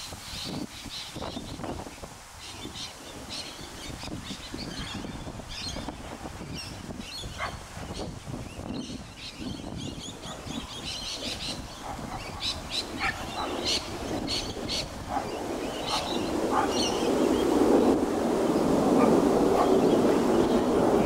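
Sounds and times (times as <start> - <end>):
birds chirping: 0.0 - 21.0
low rushing noise: 12.6 - 21.0.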